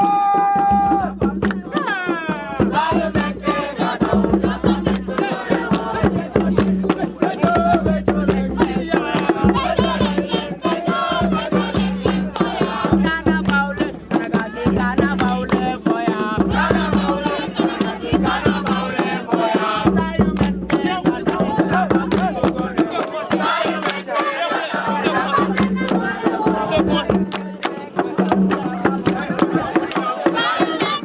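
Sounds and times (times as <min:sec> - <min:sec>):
group singing and chanting: 0:00.0 - 0:31.0
sharp percussive hits: 0:00.0 - 0:31.0.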